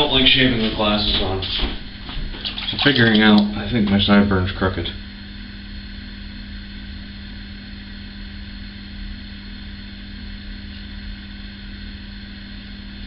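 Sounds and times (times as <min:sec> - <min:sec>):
shower running: 0:02.1 - 0:04.2.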